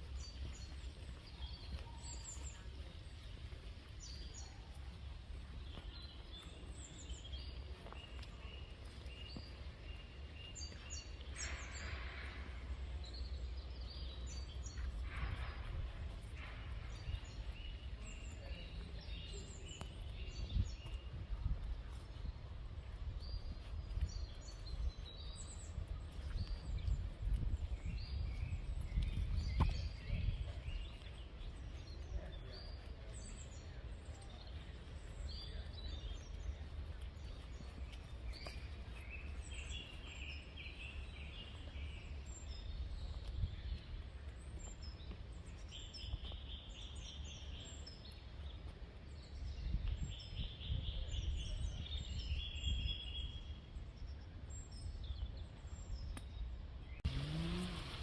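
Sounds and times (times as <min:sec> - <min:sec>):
steady low rumble: 0:00.0 - 0:45.7
songbirds chirping and trilling: 0:00.0 - 0:58.0.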